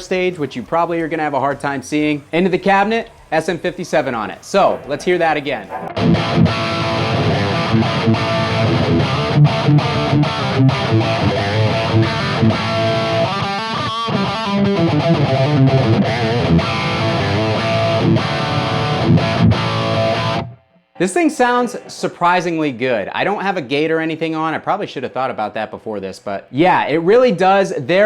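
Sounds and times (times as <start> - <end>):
distorted electric guitar metal riff: 2.4 - 22.0.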